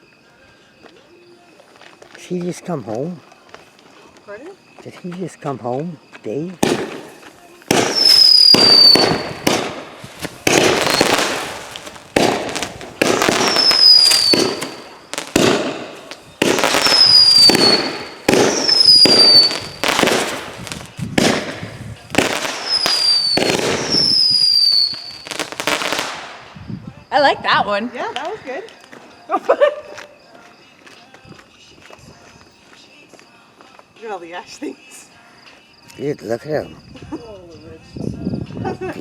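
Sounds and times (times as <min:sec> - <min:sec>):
firework whistle: 0:06.6 - 0:26.5
firework bangs: 0:06.6 - 0:26.6.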